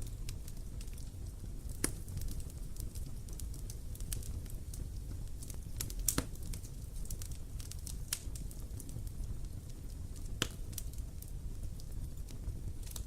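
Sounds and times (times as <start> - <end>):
campfire crackling and popping: 0.0 - 13.0
low rumble of flames: 0.0 - 13.0.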